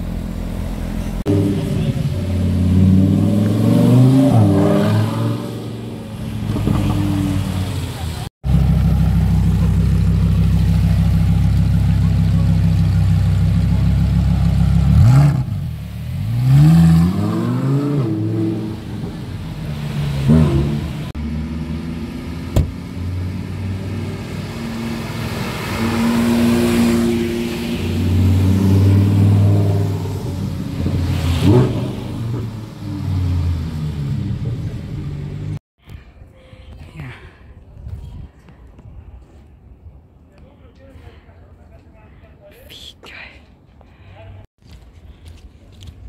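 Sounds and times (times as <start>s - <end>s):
sports car engines passing: 0.0s - 35.6s.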